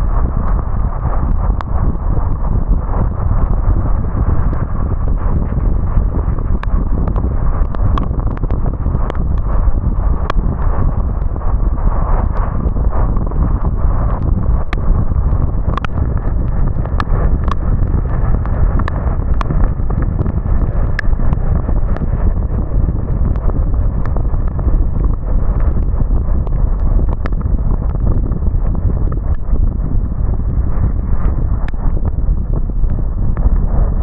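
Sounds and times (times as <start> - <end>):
rumble of tyres on road: 0.0 - 34.0.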